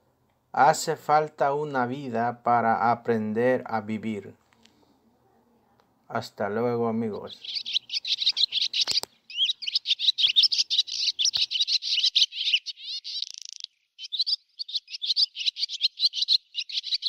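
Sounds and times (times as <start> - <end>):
rapid high bird chirping: 7.0 - 17.0.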